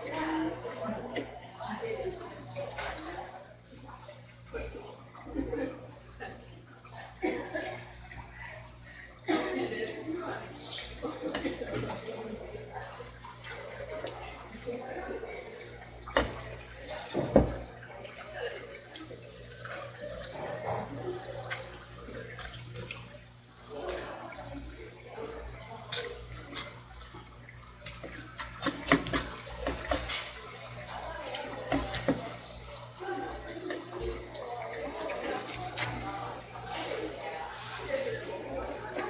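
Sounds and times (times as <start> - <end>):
water running from a tap: 0.0 - 39.0
clicks and knocks handling fish: 16.0 - 18.2, 25.3 - 39.0.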